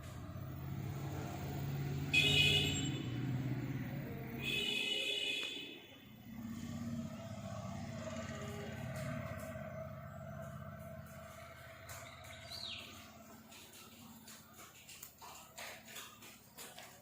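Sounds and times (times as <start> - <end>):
vehicle engine rumbling: 0.0 - 17.0
car horn honking: 2.0 - 3.4, 4.2 - 6.1.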